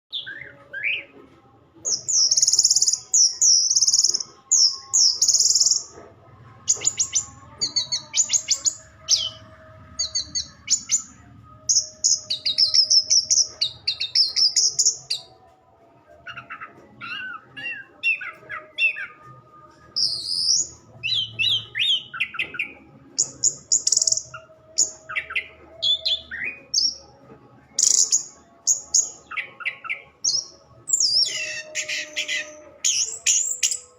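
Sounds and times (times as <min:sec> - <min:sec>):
bird singing whistles and trills: 0:00.1 - 0:01.1, 0:01.8 - 0:05.9, 0:06.7 - 0:15.3, 0:19.9 - 0:27.0, 0:27.7 - 0:33.9.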